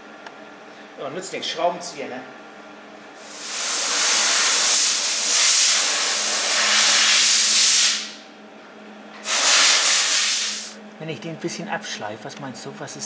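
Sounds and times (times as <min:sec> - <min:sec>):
escaping air hiss: 0:03.2 - 0:08.2, 0:09.2 - 0:10.8.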